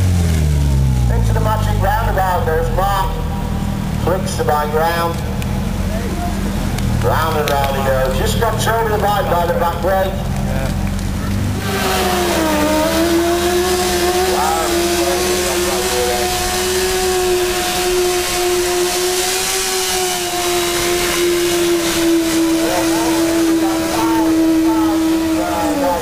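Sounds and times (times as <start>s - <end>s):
motorcycle engine at high revs: 0.0s - 26.0s.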